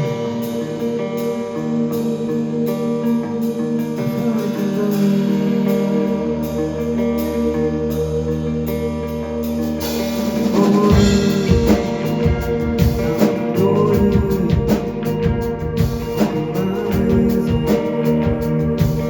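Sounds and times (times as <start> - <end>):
live rock band playing: 0.0 - 19.0
drum kit beat: 9.8 - 19.0.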